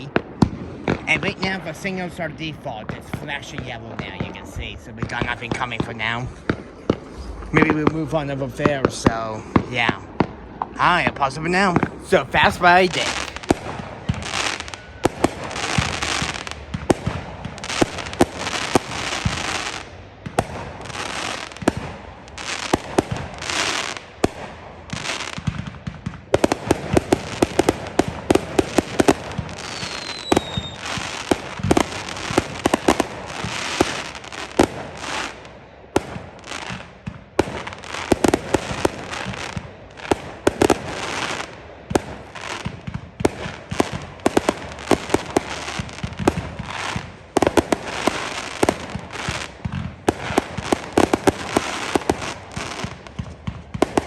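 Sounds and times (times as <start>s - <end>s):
fireworks banging and crackling: 12.1s - 13.4s, 36.0s - 54.0s
falling firework whistle: 29.8s - 30.8s.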